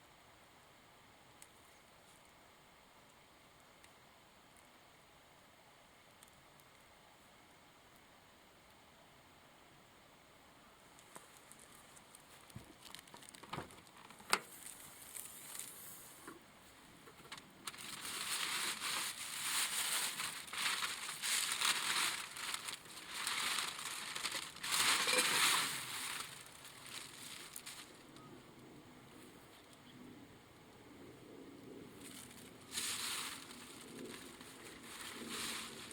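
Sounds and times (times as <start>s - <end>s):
crinkling crunching rustle: 11.0s - 16.3s, 17.1s - 28.3s, 32.0s - 35.9s.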